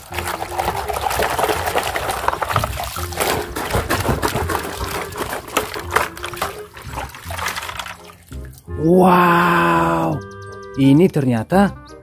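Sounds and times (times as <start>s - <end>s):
water sloshing in plastic bucket: 0.0s - 8.7s.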